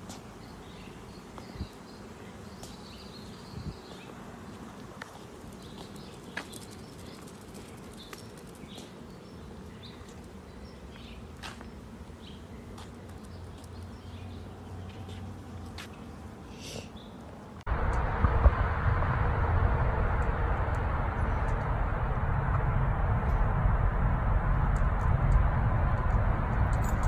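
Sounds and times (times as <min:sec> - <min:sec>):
small birds chirping faintly: 0:00.0 - 0:17.6.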